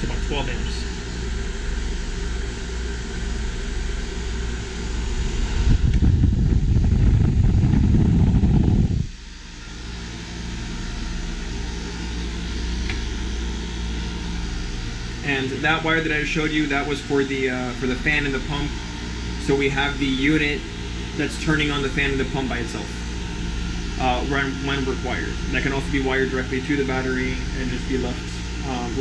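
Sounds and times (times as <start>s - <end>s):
heat pump humming: 0.0s - 29.0s
low rumble: 3.0s - 10.0s.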